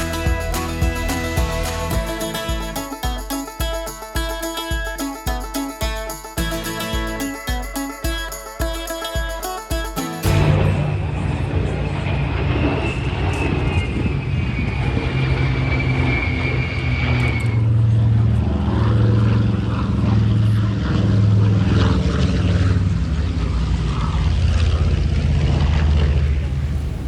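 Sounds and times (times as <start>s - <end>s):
high whine sinking in pitch: 10.2s - 27.0s
propeller airplane engine droning: 10.5s - 27.0s.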